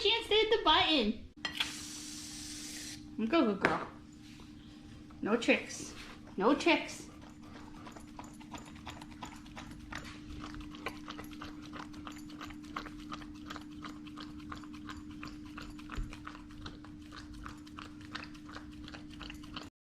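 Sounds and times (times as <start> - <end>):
steady low hum: 0.0 - 19.7
dog licking container: 6.6 - 19.7.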